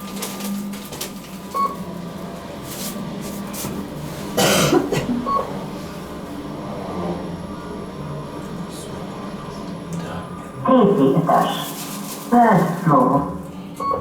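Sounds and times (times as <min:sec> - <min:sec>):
elevator low hum: 0:00.0 - 0:14.0
person coughing: 0:04.4 - 0:05.3.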